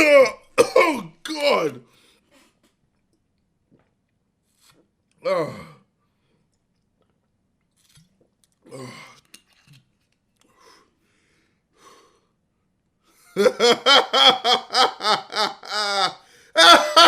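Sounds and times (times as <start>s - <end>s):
faint breaths: 10.4s - 12.4s
man laughing hard: 13.4s - 17.0s.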